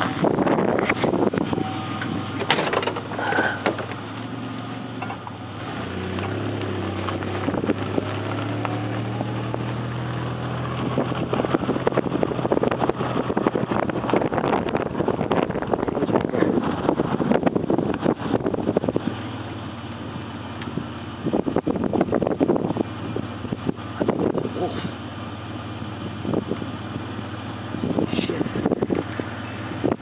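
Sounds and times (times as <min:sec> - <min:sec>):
wind on microphone crackling: 0:00.0 - 0:02.4, 0:06.0 - 0:19.3, 0:27.7 - 0:30.0
truck engine humming: 0:00.0 - 0:30.0.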